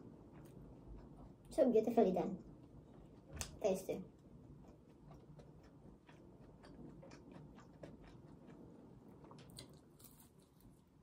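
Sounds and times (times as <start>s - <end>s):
croissant tearing and chewing: 5.0s - 11.0s.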